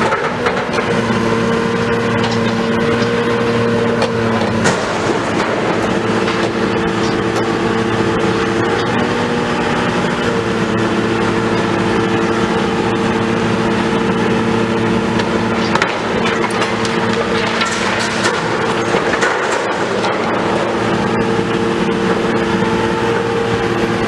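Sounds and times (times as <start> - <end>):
heavy diesel engine running: 0.0 - 24.0
clatter with sharp knocks: 4.0 - 7.6, 15.1 - 21.0.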